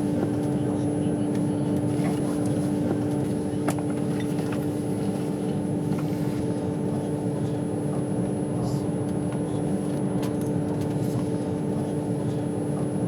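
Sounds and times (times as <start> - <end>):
train rumble inside carriage: 0.0 - 13.0.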